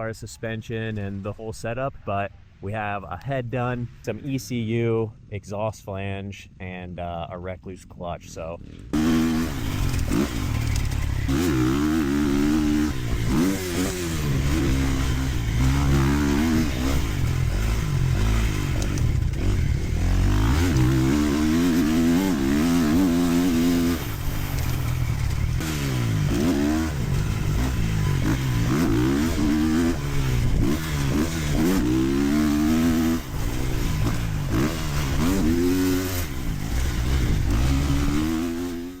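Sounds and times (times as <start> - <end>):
motocross bike engine revving: 8.6 - 39.0.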